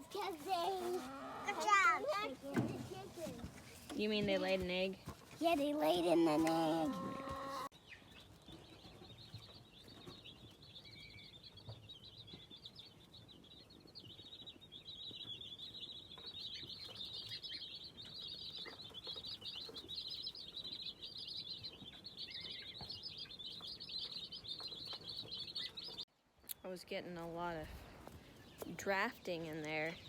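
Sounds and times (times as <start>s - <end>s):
chicks peeping: 0.0s - 26.0s.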